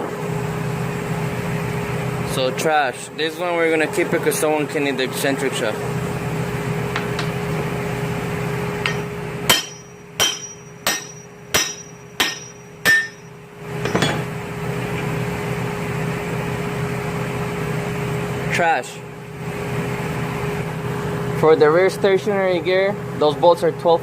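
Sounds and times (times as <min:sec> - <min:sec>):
steady hum: 0:00.0 - 0:23.1
hammer striking metal: 0:08.8 - 0:14.3.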